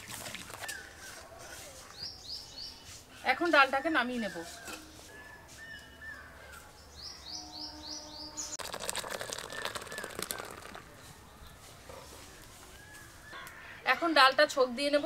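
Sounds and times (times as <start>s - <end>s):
birds chirping: 5.2s - 15.0s
rapid clatter: 8.6s - 10.9s.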